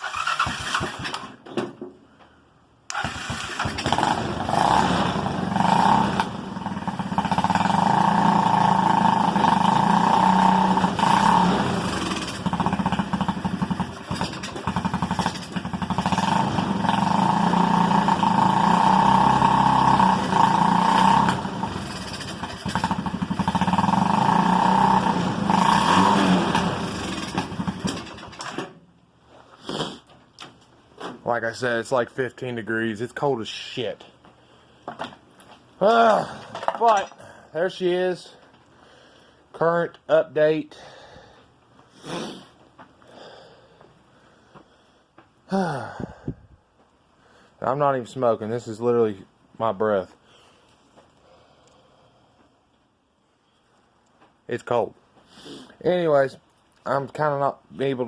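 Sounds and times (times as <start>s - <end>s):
engine sputtering and revving: 2.9s - 28.4s.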